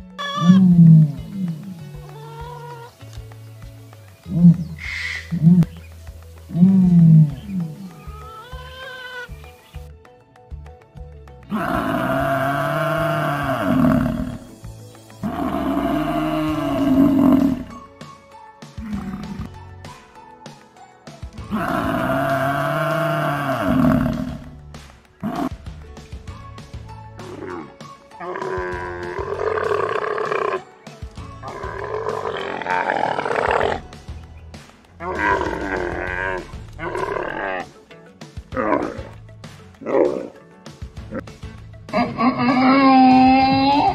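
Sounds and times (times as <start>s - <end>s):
water buffalo bellowing: 0.0s - 2.9s, 11.5s - 14.4s, 27.2s - 30.6s, 31.4s - 33.9s, 35.0s - 37.7s, 41.9s - 43.9s
background music: 0.0s - 43.9s.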